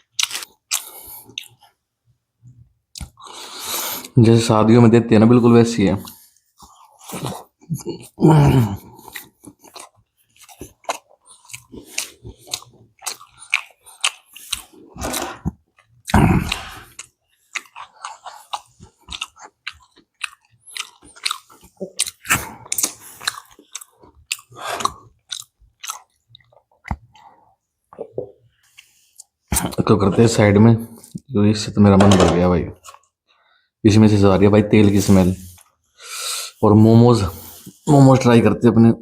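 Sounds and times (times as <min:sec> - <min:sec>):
person chewing crunchy food: 0:00.0 - 0:01.8, 0:06.0 - 0:29.8.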